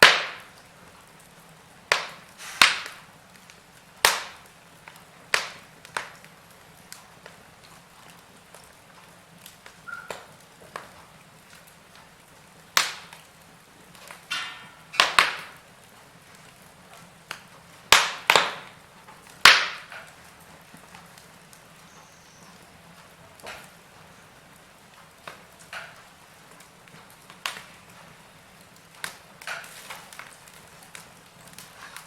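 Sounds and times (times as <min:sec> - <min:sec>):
loud sharp pops of fire: 0:00.0 - 0:32.0
wood fire crackling: 0:00.0 - 0:32.0
brief hiss: 0:02.4 - 0:02.8.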